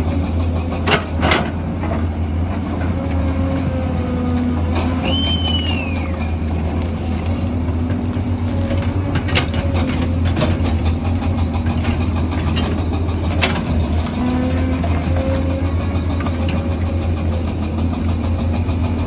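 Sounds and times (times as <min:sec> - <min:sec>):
diesel engine running: 0:00.0 - 0:19.0
brief squeal: 0:05.0 - 0:06.4.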